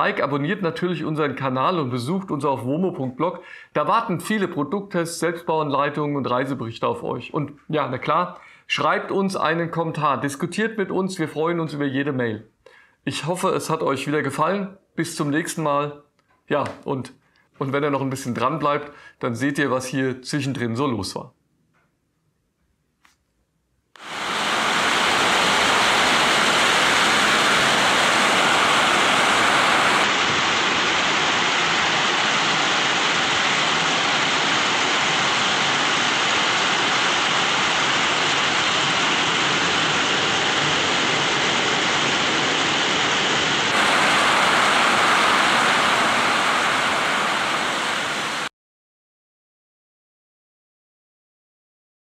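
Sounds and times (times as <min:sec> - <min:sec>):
heavy rain: 0:24.0 - 0:48.5.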